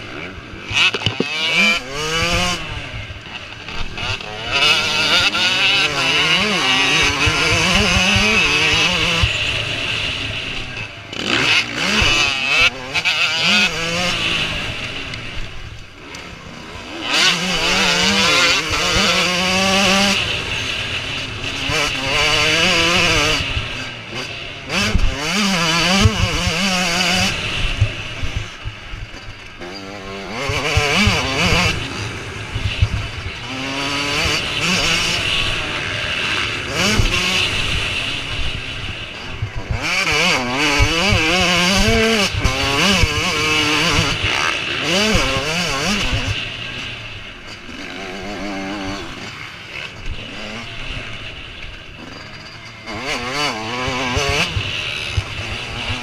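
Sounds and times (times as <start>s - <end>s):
motocross bike engines revving: 0.0s - 56.0s.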